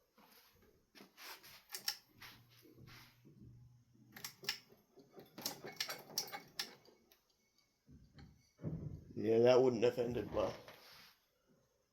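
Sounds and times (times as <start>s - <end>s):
fan parts clicking and clacking: 1.6s - 2.1s, 4.1s - 8.6s.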